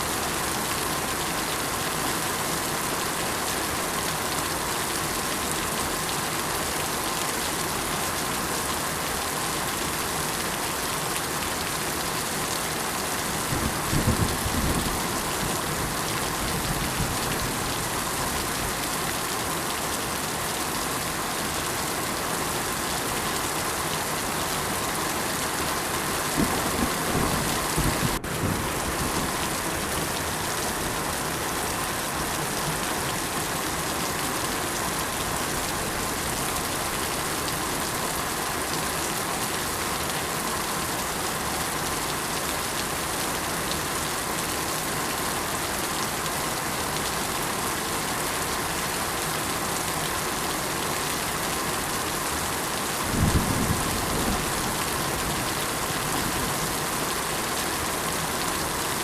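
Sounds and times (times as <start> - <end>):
steady rain falling: 0.0 - 59.0
low rumble of thunder: 13.6 - 15.6, 26.4 - 29.4, 53.1 - 54.7.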